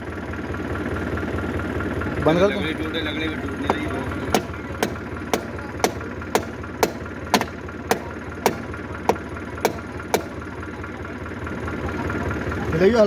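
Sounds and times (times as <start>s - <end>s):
tractor engine idling: 0.0s - 13.0s
heavy blows on wood: 3.7s - 10.5s.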